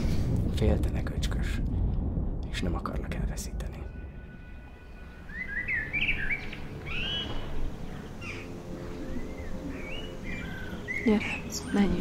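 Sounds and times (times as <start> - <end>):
small songbirds chirping: 4.9 - 12.0.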